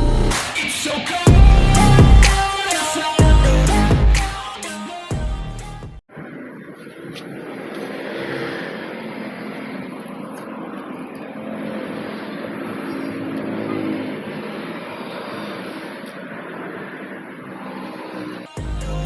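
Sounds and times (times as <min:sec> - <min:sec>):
vehicle engine running: 0:01.3 - 0:02.3.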